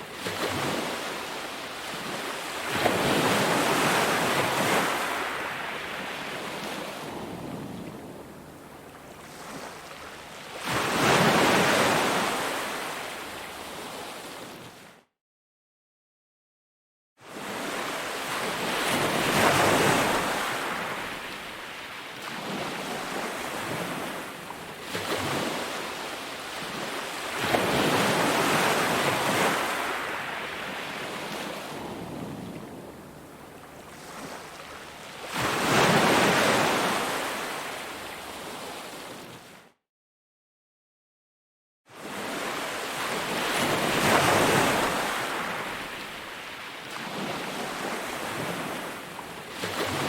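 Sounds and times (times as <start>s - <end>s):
ocean surf breaking: 42.2s - 46.0s.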